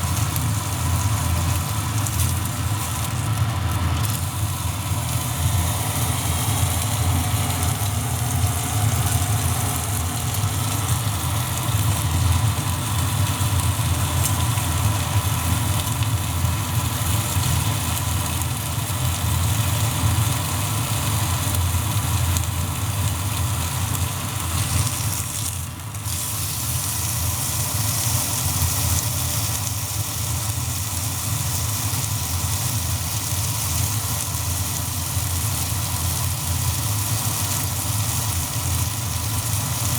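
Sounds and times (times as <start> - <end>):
continuous low rumble: 0.0 - 17.4
meat sizzling over fire: 0.0 - 39.9.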